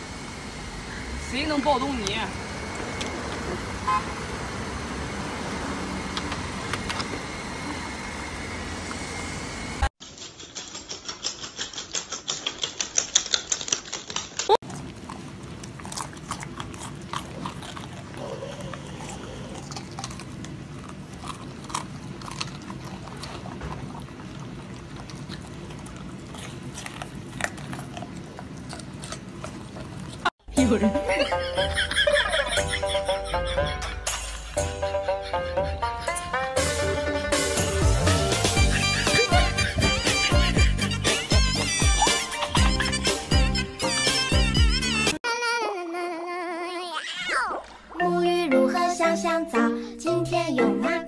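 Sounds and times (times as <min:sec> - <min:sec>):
rapid rhythmic clicking: 0:10.0 - 0:14.6
dogs crunching broccoli: 0:10.0 - 0:30.3.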